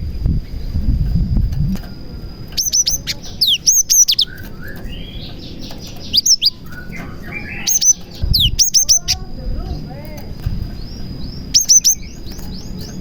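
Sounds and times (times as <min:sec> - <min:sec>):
low rumble: 0:00.0 - 0:03.3
soft buzzy bird phrases: 0:01.5 - 0:13.0
bird singing sharp whistles: 0:02.6 - 0:05.3, 0:06.1 - 0:09.2, 0:11.5 - 0:13.0.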